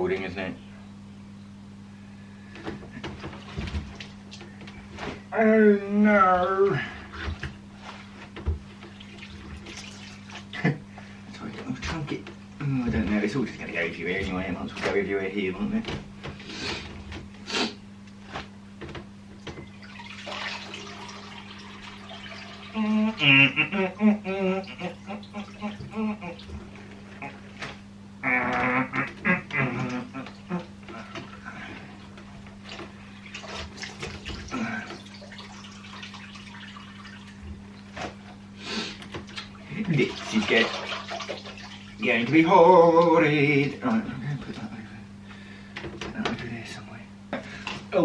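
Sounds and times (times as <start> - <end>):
steady low hum: 0.0 - 48.0
water splashing and pouring: 8.9 - 10.5, 19.6 - 22.9, 32.6 - 37.9, 39.4 - 42.2.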